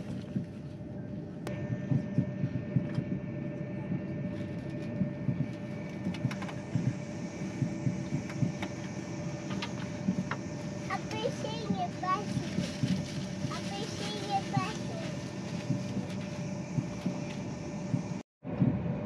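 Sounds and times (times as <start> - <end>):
steady hum tone: 0.0 - 19.0
train cabin rumble: 0.0 - 19.0.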